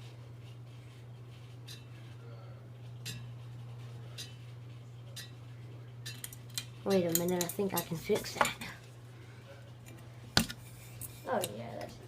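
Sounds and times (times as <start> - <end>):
ceiling fan humming: 0.0 - 12.0
loose fan part clinking: 6.0 - 8.8.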